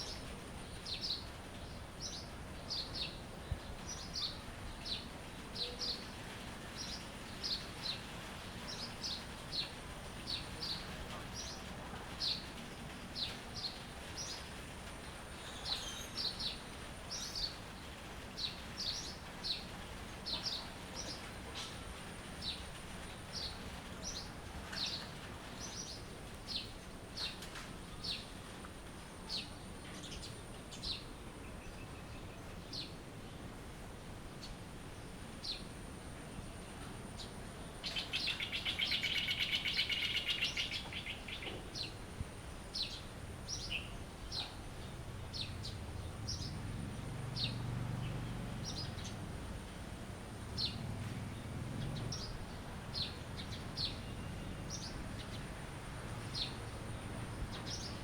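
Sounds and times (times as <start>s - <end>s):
faint background hiss: 0.0s - 58.0s
bird chirping: 37.2s - 42.0s, 50.6s - 55.5s, 56.2s - 58.0s.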